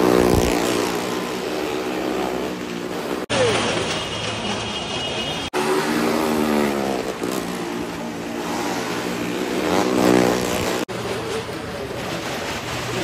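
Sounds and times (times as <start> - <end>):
car engine revving: 5.6 - 10.9.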